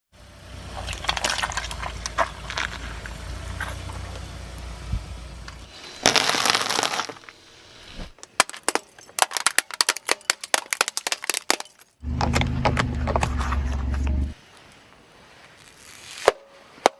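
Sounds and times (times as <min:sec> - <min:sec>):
car tyres crushing objects: 0:00.5 - 0:14.4
rapid sharp cracks: 0:06.0 - 0:07.3
loud low steady hum: 0:12.0 - 0:14.4.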